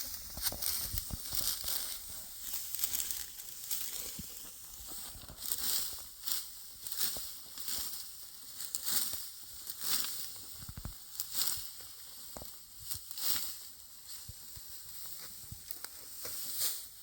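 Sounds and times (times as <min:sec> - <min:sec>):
dry wheat stalks rustling: 0:00.0 - 0:17.0.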